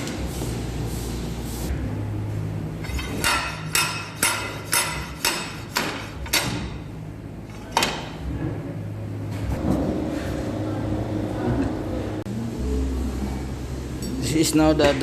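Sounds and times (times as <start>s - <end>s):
steady low hum: 0.0s - 15.0s
hammer striking metal: 2.8s - 6.8s.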